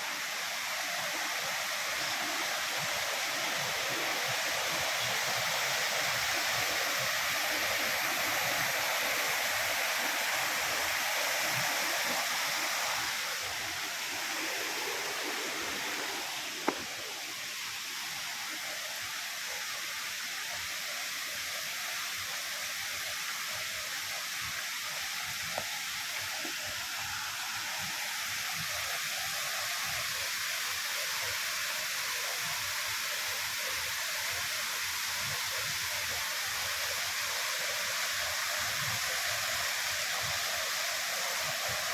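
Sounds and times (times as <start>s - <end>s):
waterfall rushing: 0.0s - 30.4s.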